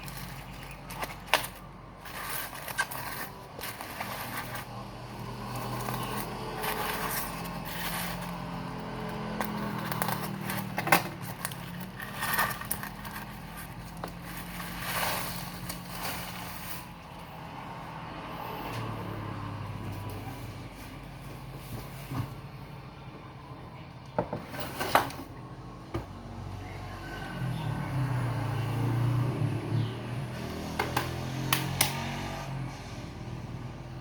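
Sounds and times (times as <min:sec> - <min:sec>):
plastic wrap crackling: 0:00.0 - 0:17.2.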